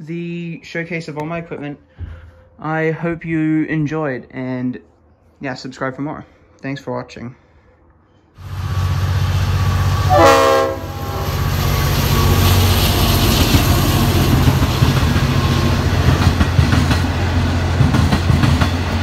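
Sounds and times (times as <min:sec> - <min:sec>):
diesel locomotive engine drone: 0:08.4 - 0:19.0
train horn blast: 0:10.0 - 0:12.6.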